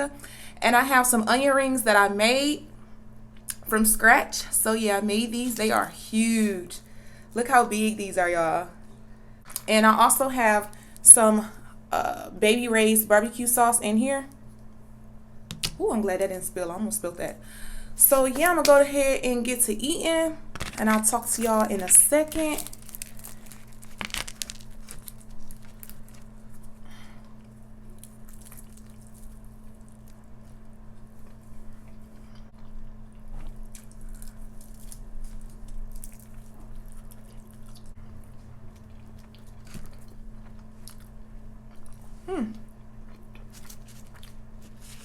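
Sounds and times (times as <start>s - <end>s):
steady low hum: 0.0s - 45.0s
person chewing crunchy food: 20.6s - 45.0s.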